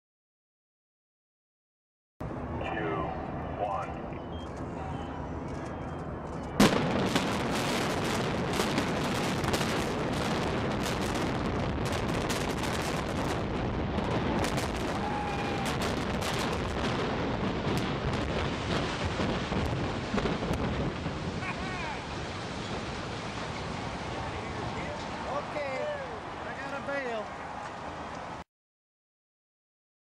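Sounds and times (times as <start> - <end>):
steady rumble: 2.2 - 25.0
explosive charges cracking: 6.6 - 23.7.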